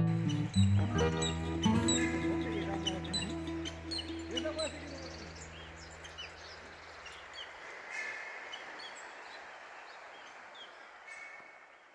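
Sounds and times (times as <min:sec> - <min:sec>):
background music: 0:00.0 - 0:06.2
small birds chirping: 0:00.0 - 0:11.9
soft outdoor hiss: 0:00.0 - 0:11.9.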